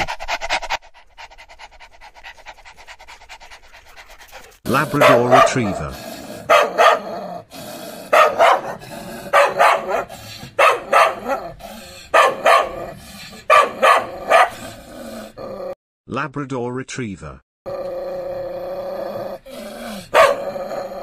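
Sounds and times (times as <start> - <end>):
dog barking: 4.9 - 7.2, 8.1 - 14.6, 20.1 - 20.5.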